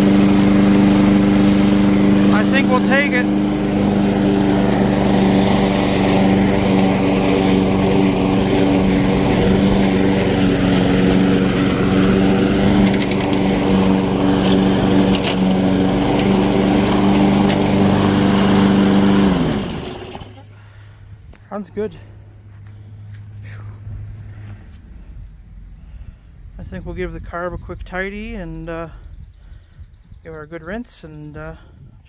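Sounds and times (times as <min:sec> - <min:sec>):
lawn mower engine running: 0:00.0 - 0:23.2.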